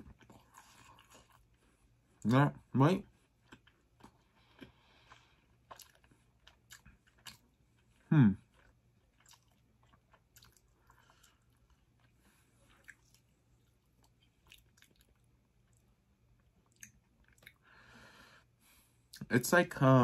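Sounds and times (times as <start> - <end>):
quiet chewing: 0.0 - 2.3, 3.0 - 17.9
mouth clicks and wet smacks: 16.6 - 17.6.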